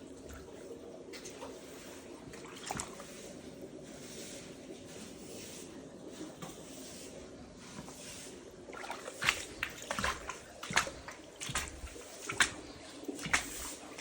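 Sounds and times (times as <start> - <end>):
floodwater trickling and sloshing: 0.0 - 14.0
sharp water splashes: 8.7 - 14.0.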